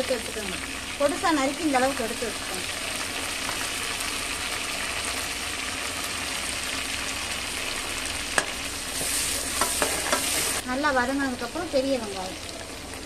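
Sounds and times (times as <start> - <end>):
herbs sizzling in hot oil: 0.0 - 13.0.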